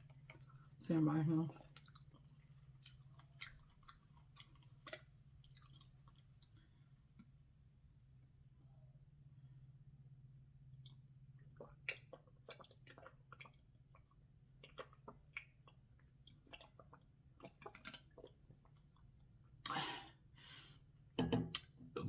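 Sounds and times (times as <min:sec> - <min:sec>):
person chewing wetly: 0:00.0 - 0:00.8, 0:01.4 - 0:07.4, 0:10.7 - 0:19.7.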